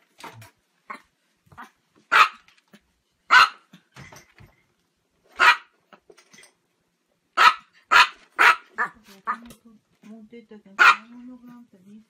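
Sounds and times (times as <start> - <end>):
small dog barking: 1.6 - 2.5, 3.3 - 3.7, 5.4 - 5.7, 7.4 - 9.4, 10.8 - 11.2.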